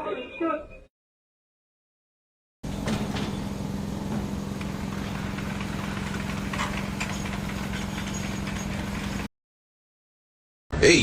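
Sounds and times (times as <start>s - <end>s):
engine idling: 2.6s - 9.3s.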